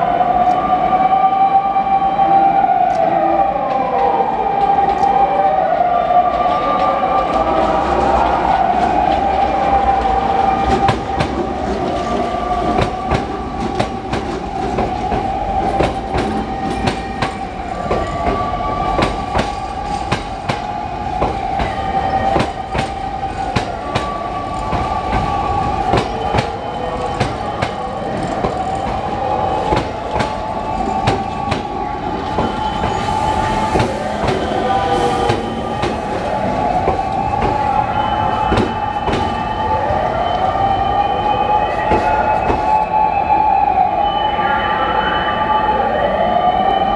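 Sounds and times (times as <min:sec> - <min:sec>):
train wheels clacking over rail joints: 0:08.2 - 0:39.4.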